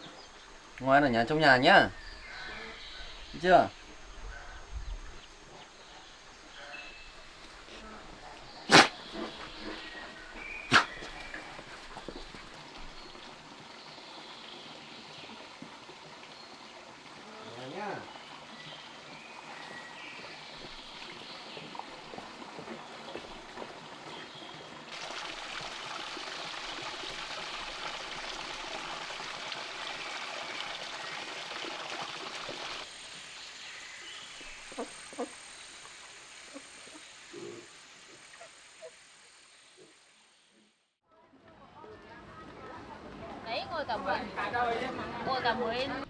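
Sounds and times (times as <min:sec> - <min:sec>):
outdoor background hiss: 0:00.0 - 0:14.6, 0:24.9 - 0:40.8.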